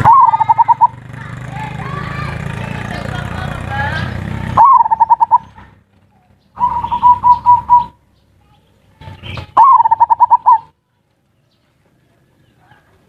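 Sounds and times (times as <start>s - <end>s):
dove cooing: 0.0s - 1.0s, 4.6s - 5.6s, 6.6s - 8.0s, 9.4s - 10.8s.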